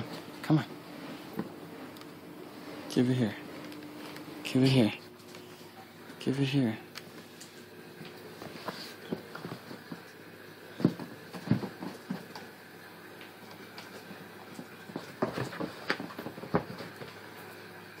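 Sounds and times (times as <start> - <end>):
ball thumps and knocks: 10.8 - 12.3.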